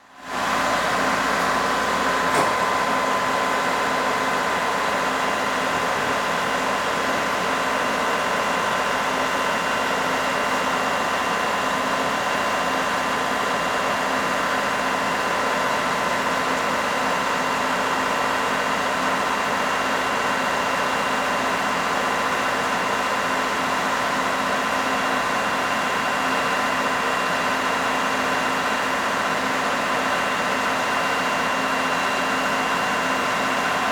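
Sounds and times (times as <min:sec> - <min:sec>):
machine engine running: 0:04.3 - 0:08.6.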